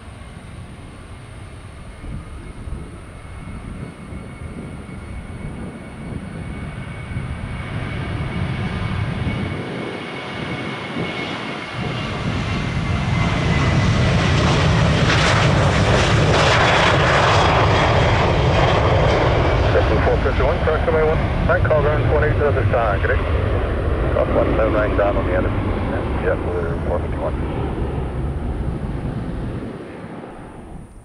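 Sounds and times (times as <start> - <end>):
jet airliner taking off: 0.0 - 31.0.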